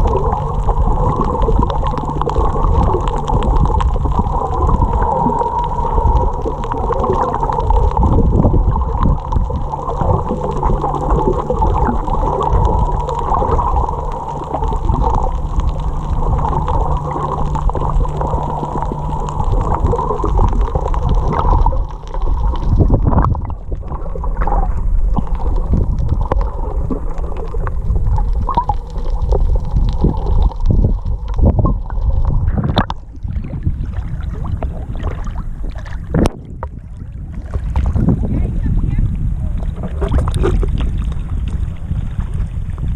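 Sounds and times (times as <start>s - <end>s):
muffled water gurgling and splashing: 0.0s - 42.9s.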